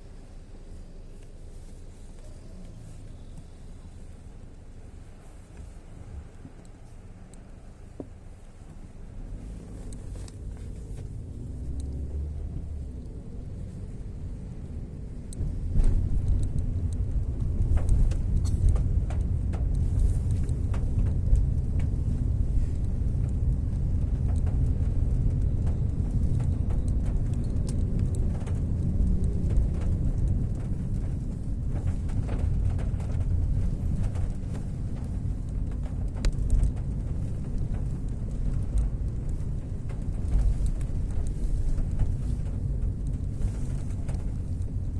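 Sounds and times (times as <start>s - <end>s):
deep rumble: 0.0s - 44.9s
heavy rain: 9.2s - 44.9s.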